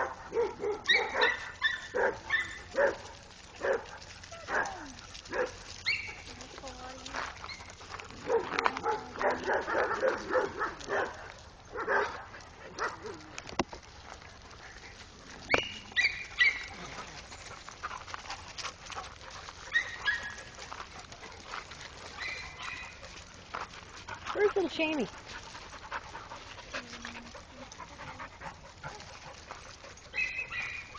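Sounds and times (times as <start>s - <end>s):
dogs barking: 0.0s - 6.3s, 7.5s - 13.3s, 15.5s - 16.9s, 18.5s - 23.2s, 26.9s - 30.9s.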